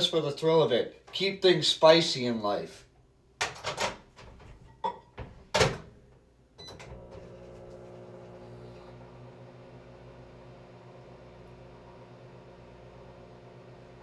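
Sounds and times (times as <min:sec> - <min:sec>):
microwave humming: 0:06.6 - 0:14.0.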